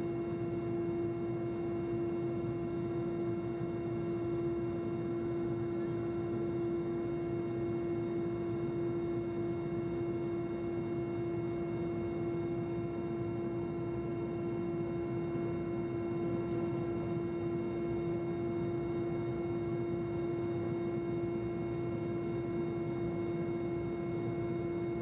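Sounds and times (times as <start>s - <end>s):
helicopter cabin drone: 0.0s - 25.0s.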